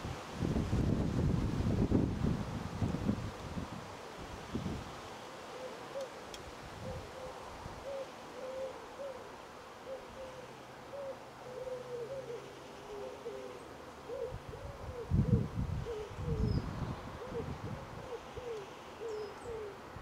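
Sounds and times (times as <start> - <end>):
birds hooting: 6.9 - 16.6, 17.2 - 19.8.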